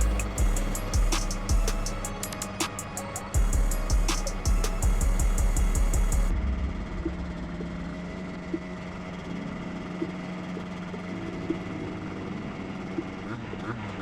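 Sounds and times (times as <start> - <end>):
engine idling: 0.0 - 2.7.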